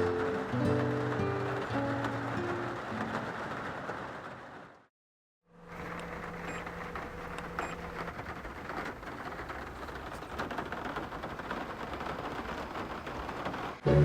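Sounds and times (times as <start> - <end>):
heavy rain on car roof: 0.0 - 4.9, 5.6 - 14.0.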